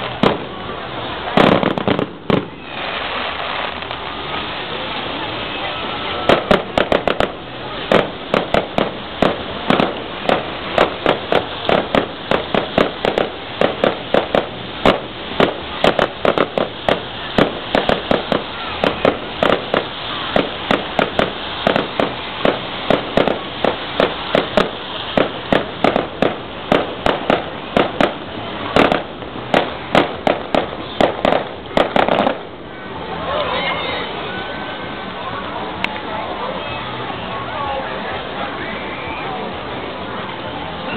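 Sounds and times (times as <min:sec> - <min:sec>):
fireworks bangs and cracks: 0:00.0 - 0:32.6.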